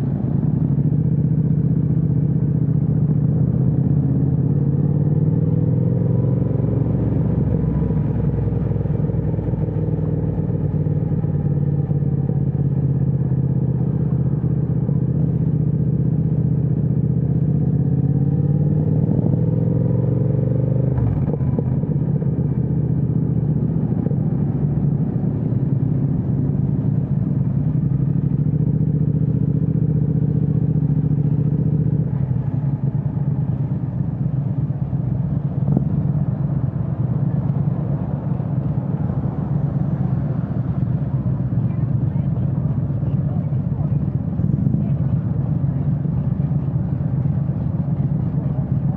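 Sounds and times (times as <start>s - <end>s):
motorcycle engine while riding: 0.0s - 48.9s.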